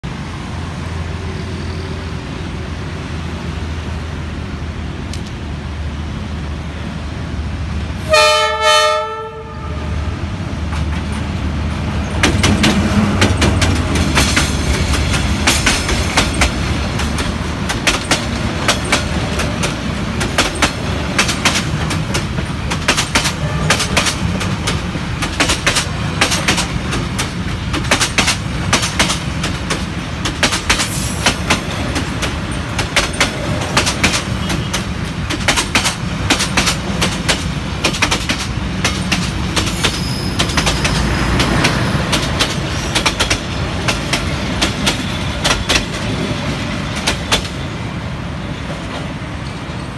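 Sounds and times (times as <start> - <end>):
diesel locomotive running: 0.0 - 49.9
train horn blasts: 8.0 - 10.1, 23.4 - 23.9
train cars clacking over rail joints: 10.6 - 47.7.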